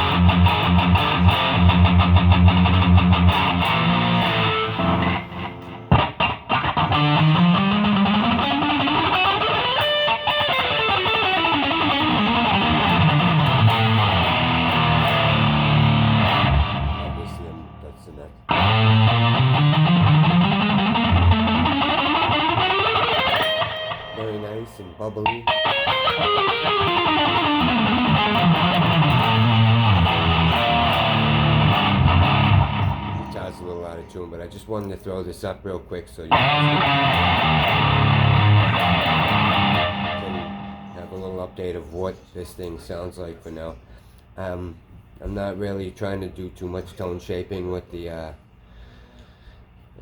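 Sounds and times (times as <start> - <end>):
distorted electric guitar: 0.0 - 34.2, 36.3 - 41.8.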